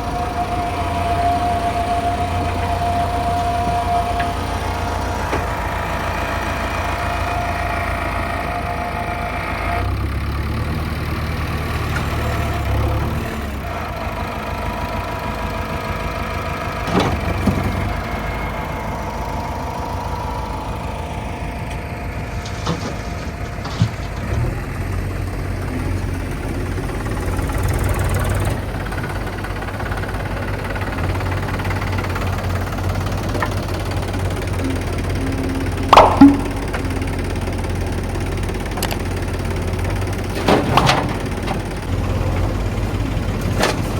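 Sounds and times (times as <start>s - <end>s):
heavy diesel engine running: 0.0s - 43.9s
sharp clunks: 35.9s - 37.1s.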